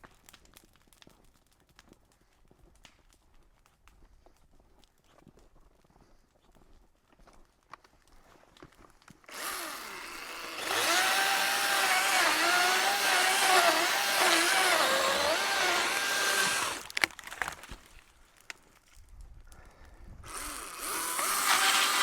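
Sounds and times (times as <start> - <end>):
chainsaw cutting tree: 9.3 - 17.8, 20.2 - 22.0.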